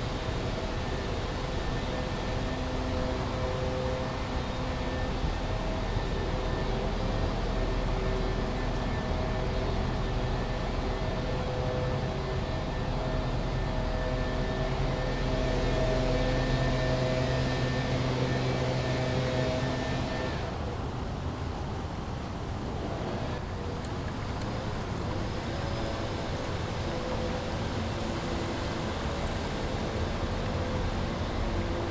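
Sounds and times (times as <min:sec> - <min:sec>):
engine hum of traffic or aircraft: 0:00.0 - 0:31.9
brook water flowing: 0:23.6 - 0:31.9.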